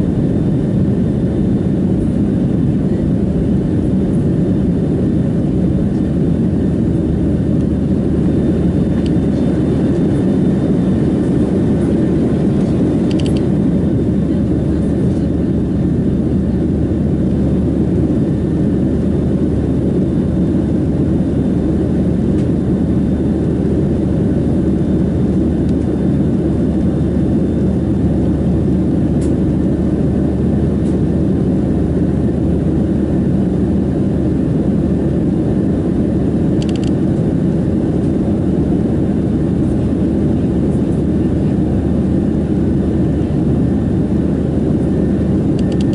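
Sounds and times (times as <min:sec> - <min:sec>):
airflow and jet engine rush: 0:00.0 - 0:45.9
faint click: 0:36.6 - 0:36.9.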